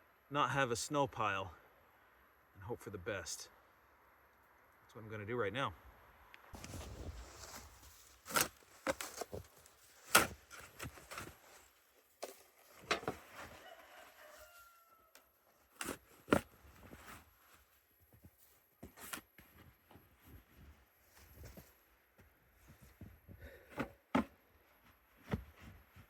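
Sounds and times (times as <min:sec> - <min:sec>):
footsteps crunching in snow: 0:06.6 - 0:14.7, 0:15.9 - 0:23.1.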